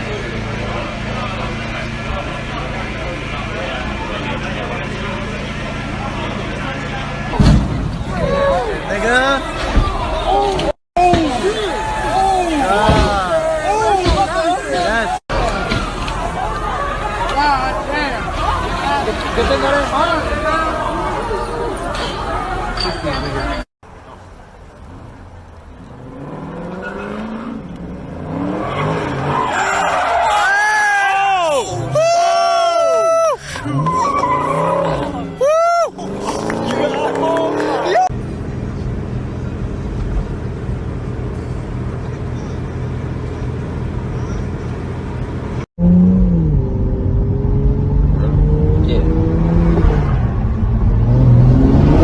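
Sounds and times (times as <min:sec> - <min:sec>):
car engine running: 0:00.0 - 0:10.3
car engine revving: 0:24.8 - 0:30.2, 0:45.5 - 0:52.0
tyres squealing: 0:31.6 - 0:36.8.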